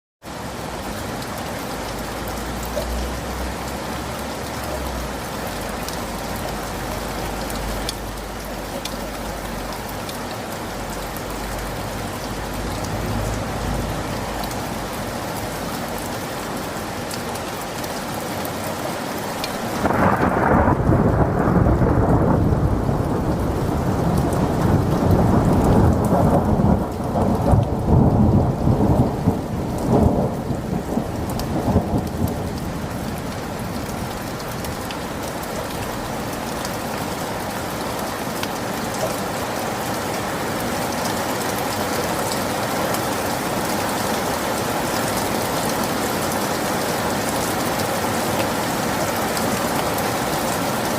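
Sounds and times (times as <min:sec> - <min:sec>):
heavy rain: 0:00.2 - 0:50.9
thunder rumbling: 0:19.4 - 0:36.5.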